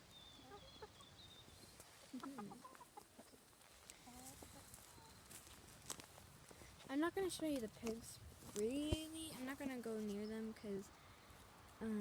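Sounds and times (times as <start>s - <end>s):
chicken clucking quietly: 0.1s - 5.4s.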